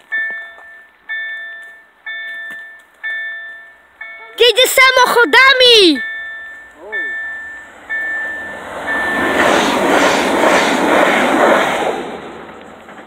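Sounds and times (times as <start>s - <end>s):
electric train passing: 0.0s - 13.0s
level crossing warning signal: 0.1s - 9.5s.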